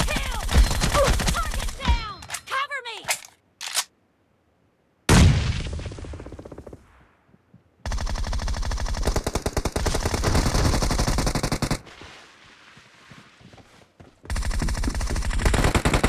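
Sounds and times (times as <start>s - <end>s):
video game automatic gunfire: 7.9s - 11.8s, 14.3s - 16.0s.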